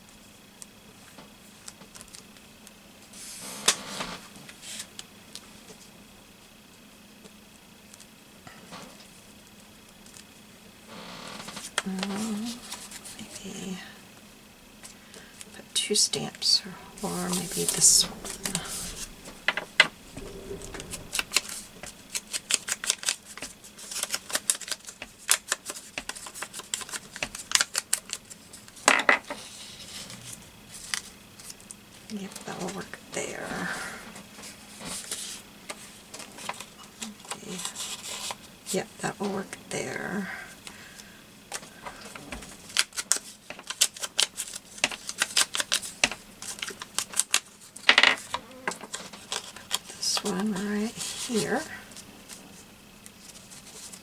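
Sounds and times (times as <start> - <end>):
paper clicks and rustles: 21.2 - 28.6, 42.4 - 50.4.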